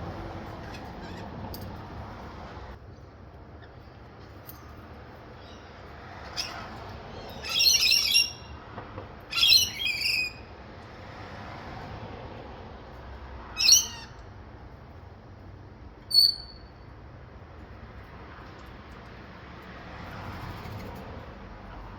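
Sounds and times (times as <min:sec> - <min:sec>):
birds screeching: 0:00.0 - 0:02.0, 0:05.4 - 0:08.6, 0:09.2 - 0:10.5, 0:13.5 - 0:14.2, 0:16.1 - 0:16.7.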